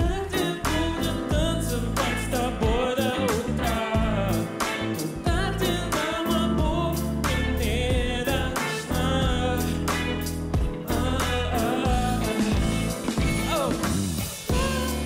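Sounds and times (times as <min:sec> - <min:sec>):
bass: 0:00.0 - 0:15.0
person singing pop ballad: 0:00.0 - 0:15.0
drum beat: 0:10.6 - 0:15.0.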